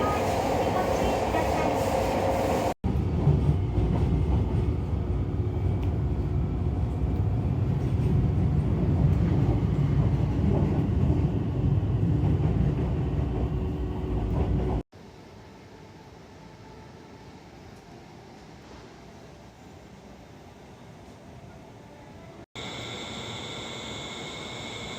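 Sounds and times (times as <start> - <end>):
train rumbling: 0.0 - 14.9.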